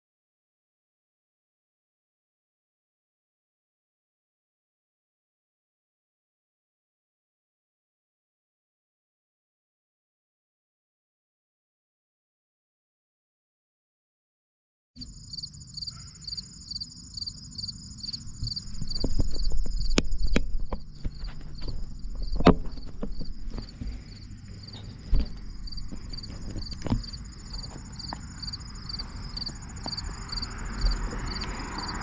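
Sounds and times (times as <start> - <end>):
insects chirping: 15.0 - 32.0
steady high insect buzz: 15.0 - 32.0
bicycle rumbling and clicking: 18.2 - 32.0.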